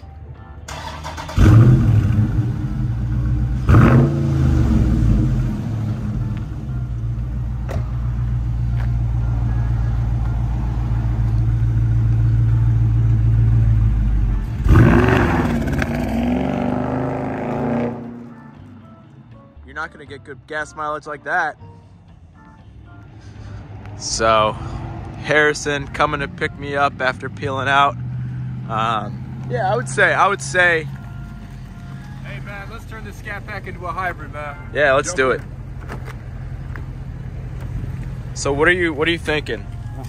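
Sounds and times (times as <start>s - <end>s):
car engine starting: 0.6s - 20.1s, 22.9s - 40.0s
car engine idling: 0.7s - 16.4s, 22.3s - 40.0s
car revving and accelerating away: 1.2s - 6.6s, 11.6s - 18.4s, 23.6s - 30.5s.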